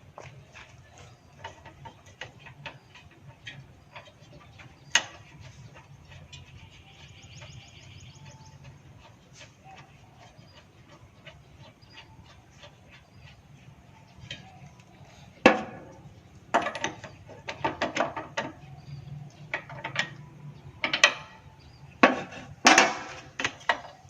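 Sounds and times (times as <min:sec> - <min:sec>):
low steady hum: 0:00.0 - 0:24.0
hand tools knocking on engine: 0:15.4 - 0:18.9.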